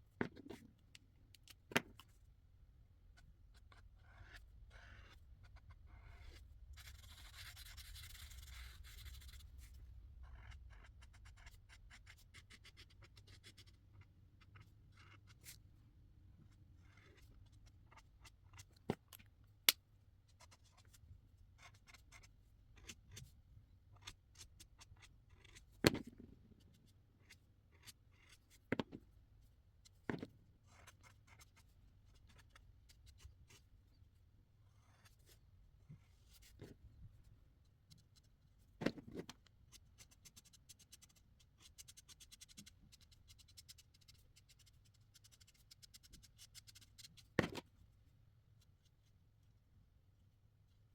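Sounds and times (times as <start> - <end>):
marker scratching on paper: 3.5 - 9.6, 10.2 - 15.6, 21.6 - 23.3, 27.2 - 28.5, 30.7 - 33.6, 39.7 - 47.3.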